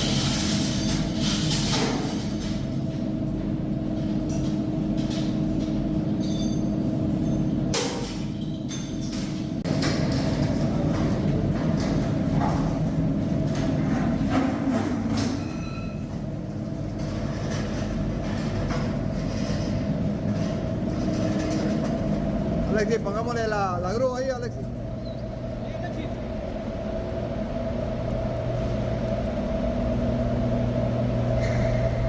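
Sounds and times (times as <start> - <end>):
machinery knocks and clanks: 0.0 - 26.5
industrial machinery droning: 0.0 - 32.0.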